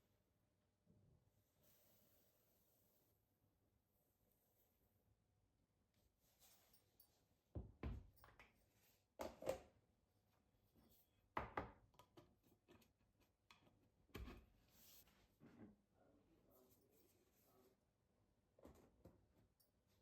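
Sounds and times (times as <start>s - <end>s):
objects knocking and thudding: 7.6s - 8.4s.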